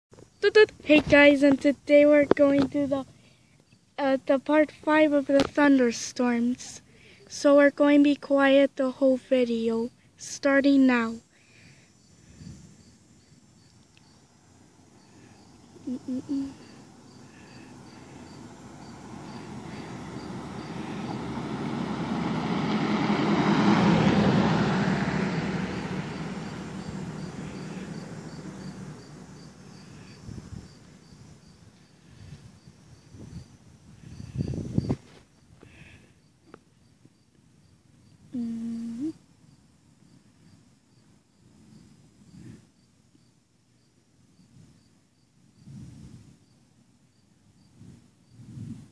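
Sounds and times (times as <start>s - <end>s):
crickets chirping: 0.1s - 48.9s
broad rushing noise: 16.0s - 31.0s.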